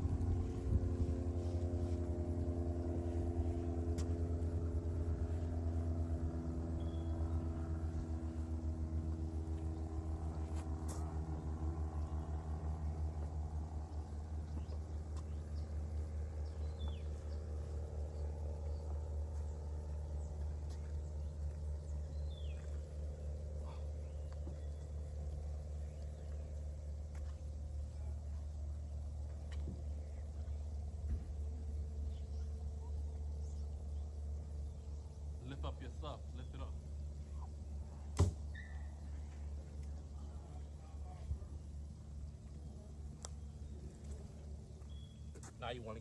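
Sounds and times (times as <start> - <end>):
engine idling: 0.0 - 46.0
faint bird chirps: 6.8 - 7.4, 38.5 - 39.2, 44.8 - 45.4.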